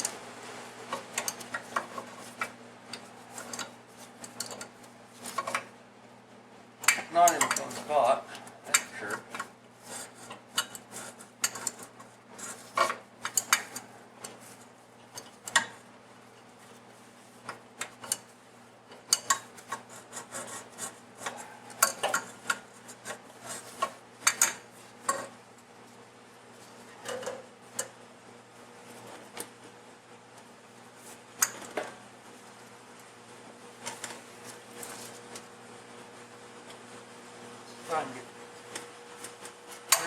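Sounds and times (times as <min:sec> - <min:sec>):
hand tools clinking on metal: 0:06.8 - 0:08.0.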